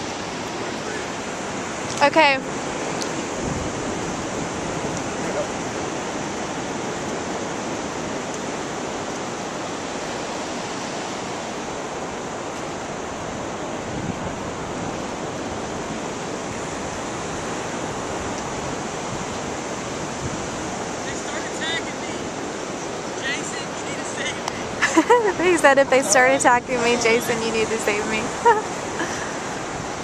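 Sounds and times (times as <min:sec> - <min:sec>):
ocean surf: 0:00.0 - 0:30.0
wind: 0:00.0 - 0:30.0.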